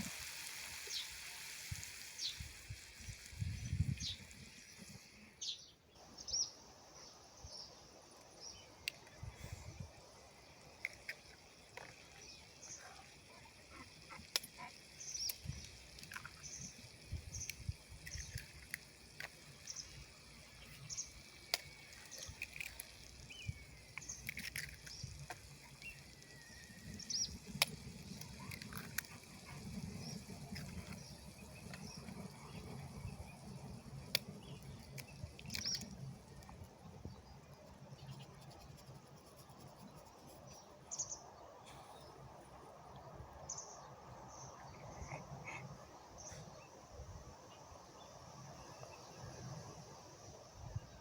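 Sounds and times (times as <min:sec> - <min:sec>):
birds chirping: 0:00.0 - 0:46.8
faint clicks: 0:08.2 - 0:40.0.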